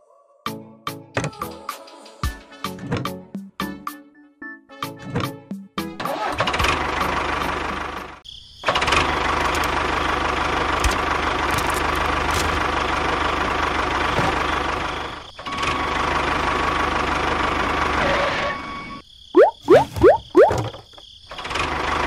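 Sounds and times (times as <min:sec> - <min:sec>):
tractor engine running: 0:08.8 - 0:15.2.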